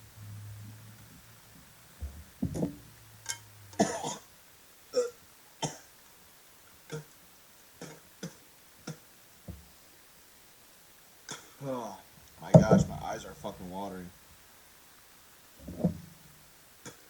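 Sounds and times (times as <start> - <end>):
man coughing and gagging: 3.8 - 4.2.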